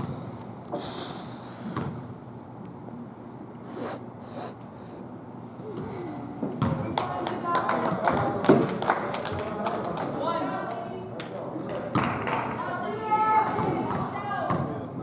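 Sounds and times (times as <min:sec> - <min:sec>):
short hissing scuffs: 0:00.7 - 0:02.1.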